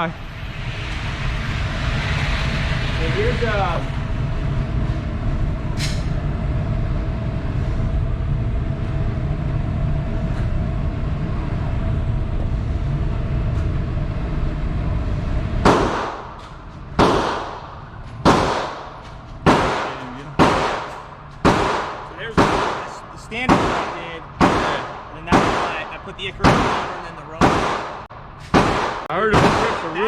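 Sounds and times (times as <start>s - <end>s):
low rumble: 0.0s - 29.1s
echoing gunshots: 15.6s - 30.0s.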